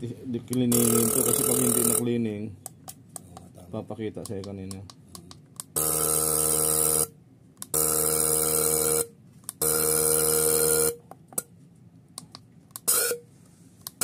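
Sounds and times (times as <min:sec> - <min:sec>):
injector nozzle buzzing spray: 0:00.7 - 0:02.0, 0:05.8 - 0:07.1, 0:07.7 - 0:11.0, 0:12.8 - 0:13.3.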